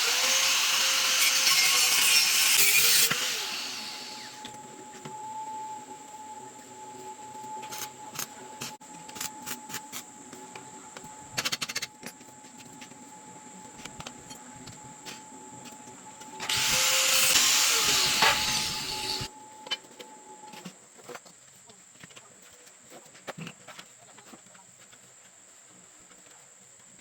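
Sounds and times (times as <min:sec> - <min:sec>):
handheld power tool running: 0:00.0 - 0:04.6, 0:16.4 - 0:19.3.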